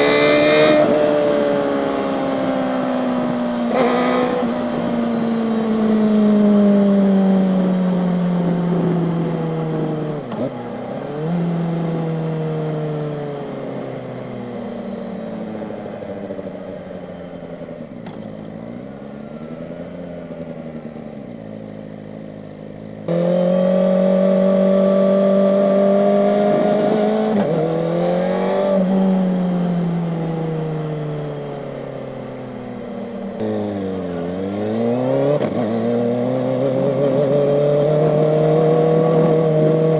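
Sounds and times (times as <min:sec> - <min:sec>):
motorcycle engine at high revs: 0:00.0 - 0:39.9
sharp throttle blips: 0:03.7 - 0:04.9.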